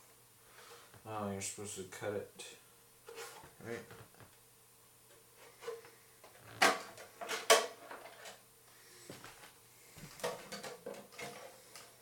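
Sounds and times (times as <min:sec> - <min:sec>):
hard plastic clacks and knocks: 0:10.2 - 0:11.9.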